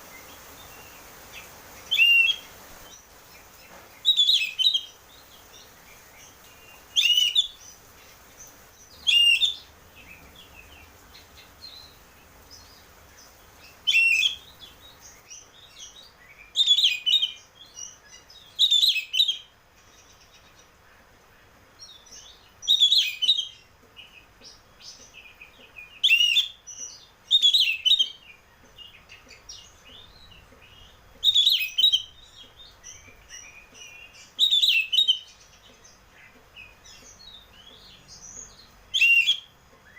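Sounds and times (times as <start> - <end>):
soft bird twittering: 0.0 - 20.7, 21.9 - 39.9
songbird singing varied phrases: 0.0 - 39.9.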